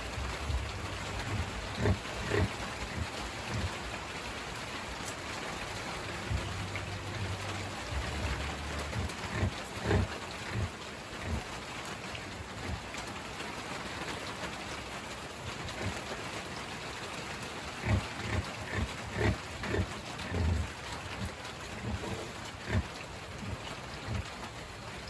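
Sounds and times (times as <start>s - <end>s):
pig grunting: 0.0s - 4.7s, 5.8s - 13.0s, 15.4s - 16.4s, 17.6s - 24.6s
steady hiss: 0.0s - 25.0s.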